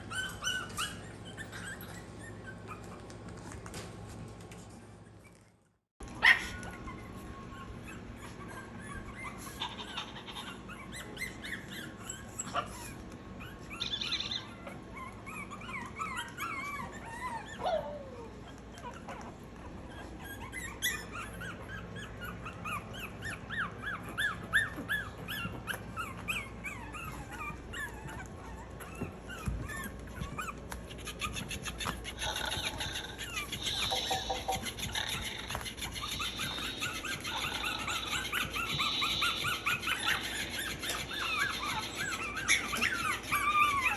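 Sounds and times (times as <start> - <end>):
puppies whimpering and squeaking: 0.0 - 3.8, 4.5 - 43.9.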